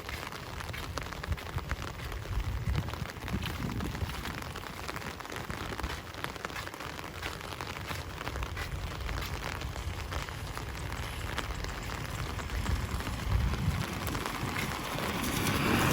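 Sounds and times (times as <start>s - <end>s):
rain pattering: 0.0s - 15.9s
low rumble: 11.4s - 15.9s.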